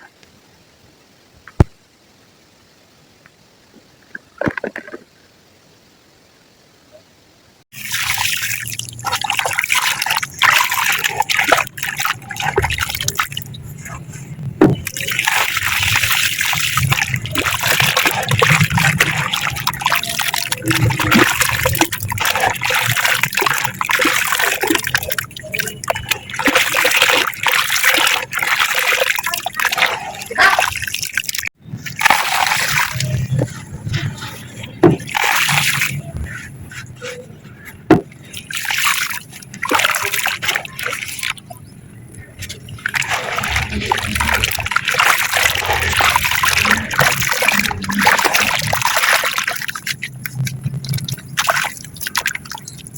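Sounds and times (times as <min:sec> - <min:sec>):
concrete crumbling in water: 0:31.8 - 0:36.0.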